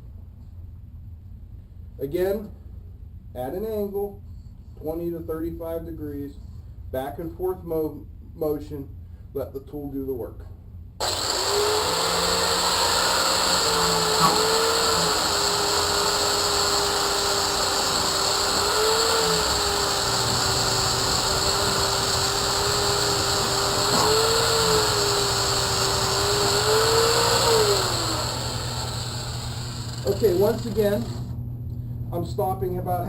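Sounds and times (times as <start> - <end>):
angle grinder motor whine: 11.0 - 31.3.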